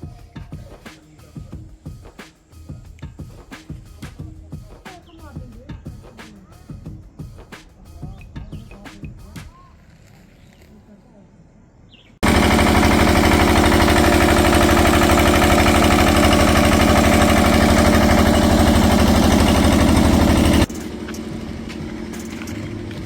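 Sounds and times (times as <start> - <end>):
small engine running: 12.2 - 23.0.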